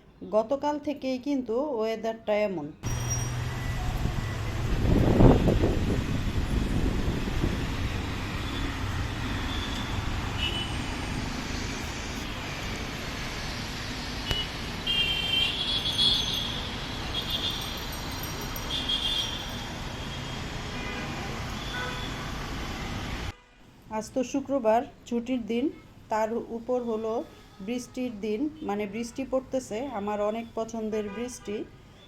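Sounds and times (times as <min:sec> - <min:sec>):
passing road traffic: 0:02.8 - 0:23.4.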